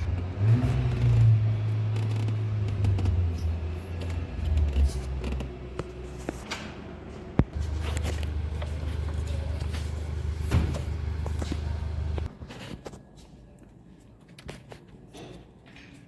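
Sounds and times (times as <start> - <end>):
diesel engine humming: 0.0 - 12.3.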